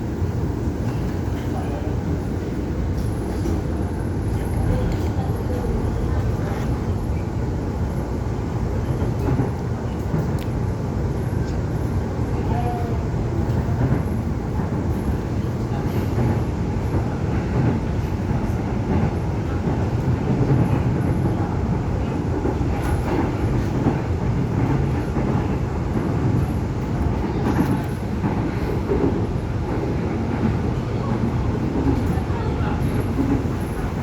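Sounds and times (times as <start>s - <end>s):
electric train rumble from inside: 0.0s - 34.0s.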